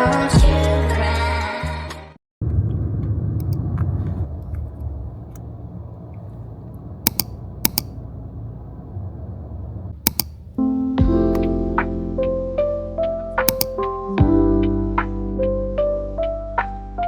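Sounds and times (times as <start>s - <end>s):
low rumbling noise: 2.4s - 12.6s
sharp clicks: 3.4s - 3.6s, 7.0s - 8.0s, 10.0s - 11.6s, 13.5s - 13.8s
background music: 10.6s - 17.0s.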